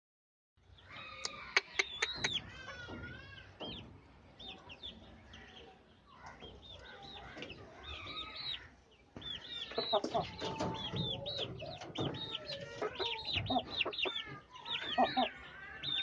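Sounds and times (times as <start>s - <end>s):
chicks peeping: 0.7s - 16.0s.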